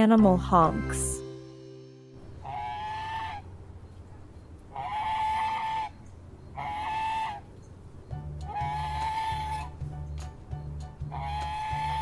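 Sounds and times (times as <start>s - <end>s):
goose honking: 2.4s - 3.7s, 4.7s - 7.6s, 8.4s - 9.8s, 11.0s - 12.0s.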